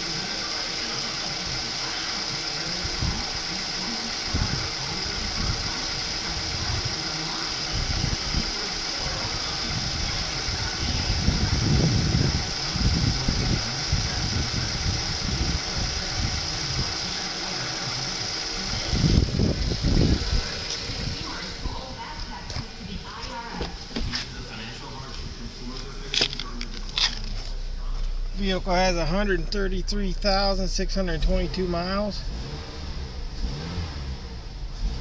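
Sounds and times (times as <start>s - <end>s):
car engine idling: 0.0s - 35.0s
low rumbling surges: 7.7s - 26.0s.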